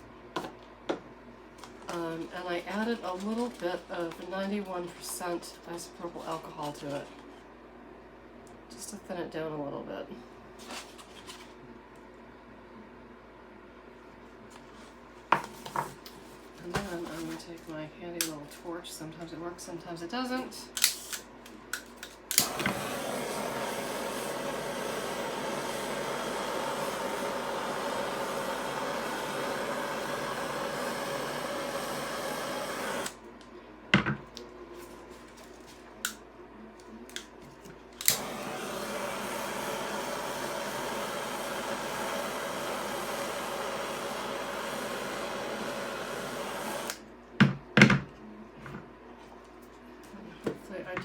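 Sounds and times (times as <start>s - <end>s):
torch igniter click: 20.7s - 33.2s, 38.0s - 47.0s
torch flame hissing: 22.3s - 33.2s, 38.0s - 47.0s.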